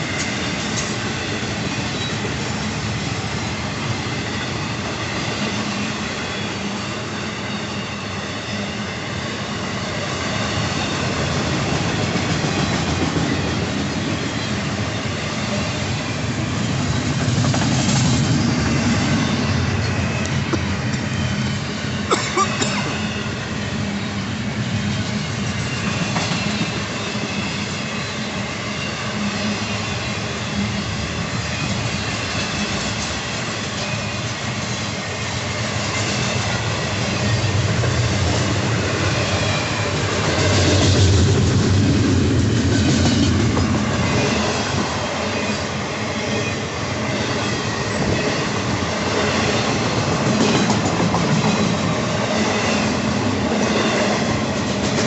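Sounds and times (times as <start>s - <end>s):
freight train wheels clattering: 10.6s - 23.1s, 25.1s - 28.9s, 31.7s - 46.5s, 47.1s - 55.0s.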